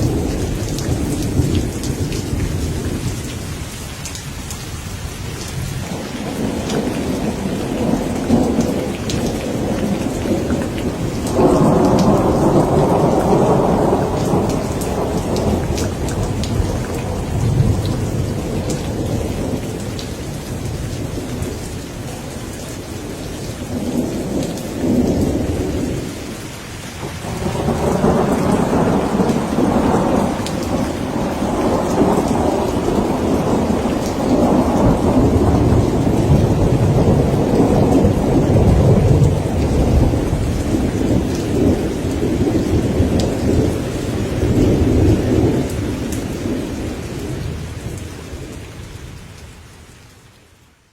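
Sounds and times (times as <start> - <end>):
rolling thunder: 0.0 - 3.6, 5.8 - 21.8, 27.0 - 48.0
rain falling: 0.0 - 50.9.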